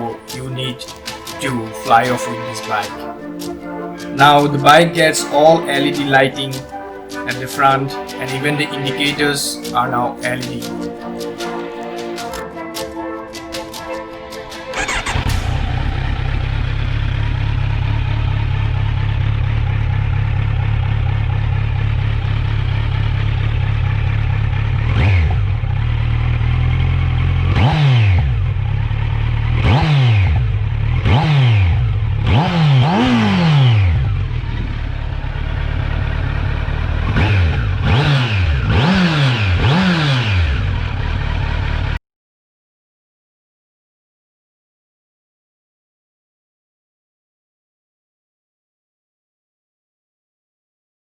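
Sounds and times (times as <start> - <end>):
motorcycle engine idling: 14.8 - 27.6, 28.2 - 42.0
motorcycle throttle blips: 14.8 - 42.0.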